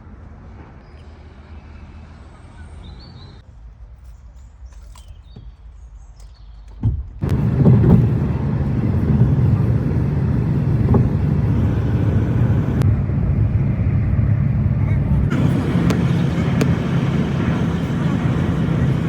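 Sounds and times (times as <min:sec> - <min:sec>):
car road noise rumble: 0:06.8 - 0:19.0
wind rush: 0:07.2 - 0:19.0.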